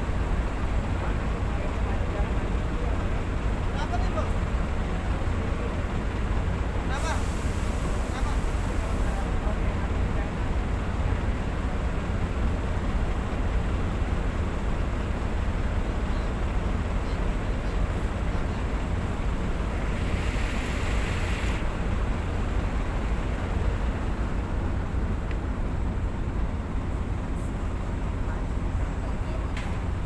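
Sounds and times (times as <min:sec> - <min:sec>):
large engine rumbling: 0:00.0 - 0:30.0
short hiss: 0:20.0 - 0:21.7.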